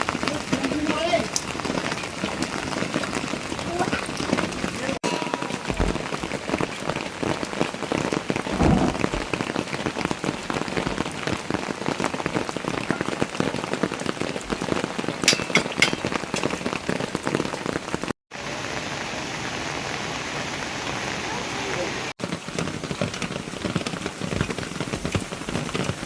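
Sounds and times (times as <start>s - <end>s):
heavy rain falling: 0.0s - 26.0s
low thud: 8.5s - 9.4s.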